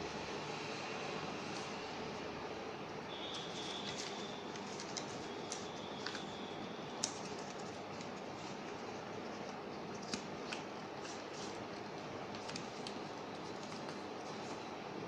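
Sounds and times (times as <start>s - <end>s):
paper being folded: 3.3s - 14.7s.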